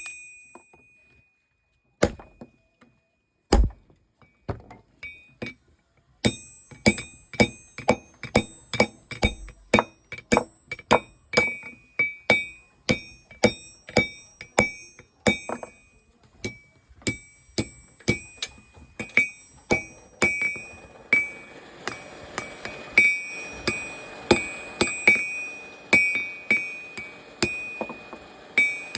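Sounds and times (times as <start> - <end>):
hammer striking metal on anvil: 6.2 - 28.9.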